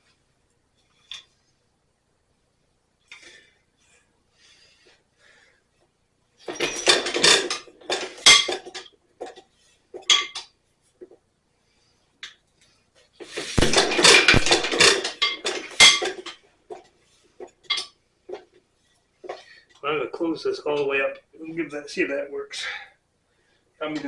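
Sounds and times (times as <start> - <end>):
metal parts clattering and clinking: 6.5 - 8.9, 13.3 - 16.4.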